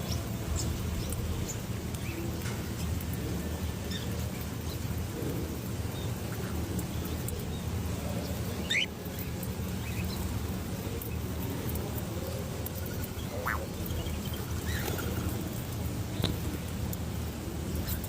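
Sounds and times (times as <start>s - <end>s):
bird calls: 12.8s - 15.4s.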